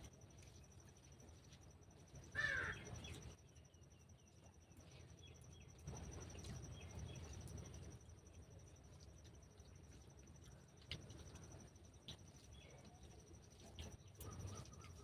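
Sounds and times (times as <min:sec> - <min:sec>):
faint bird chirps: 0:13.8 - 0:15.0.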